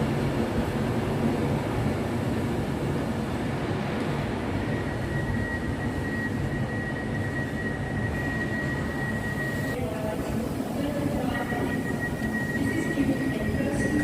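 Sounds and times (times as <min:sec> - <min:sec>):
train rumbling: 0:00.0 - 0:14.0.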